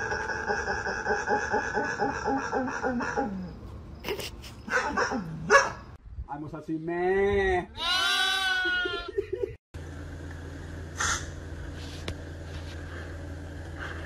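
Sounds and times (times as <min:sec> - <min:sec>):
lambs bleating: 0:07.8 - 0:09.1
steady low hum: 0:09.1 - 0:14.0.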